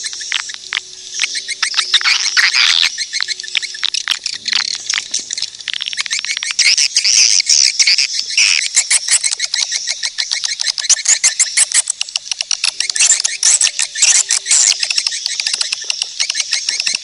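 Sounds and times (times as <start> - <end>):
swiftlets twittering and chirping: 0.0 - 17.0.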